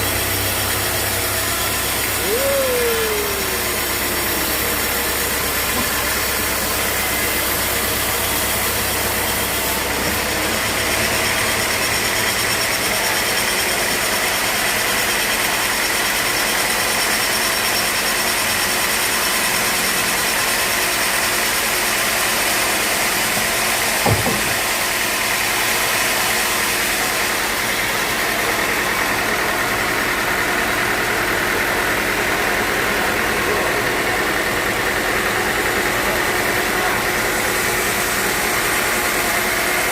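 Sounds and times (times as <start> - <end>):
sawmill machinery running: 0.0 - 39.9
sharp knock: 24.0 - 24.6.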